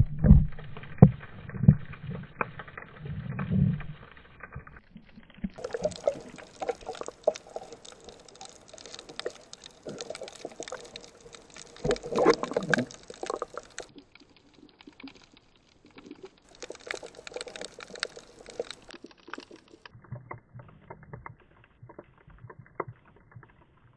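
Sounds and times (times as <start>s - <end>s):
water splashing and gurgling: 0.0s - 23.9s.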